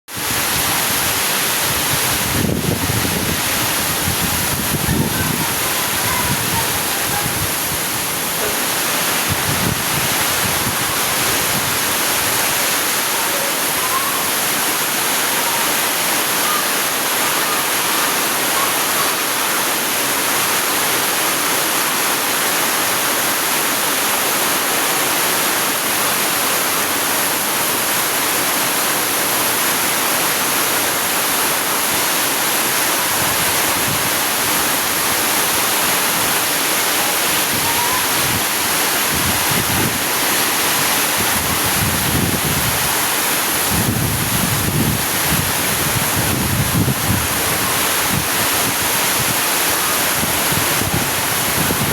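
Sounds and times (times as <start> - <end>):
heavy rain pouring: 0.1 - 51.9
wind buffeting microphone: 0.2 - 12.8, 37.3 - 51.9.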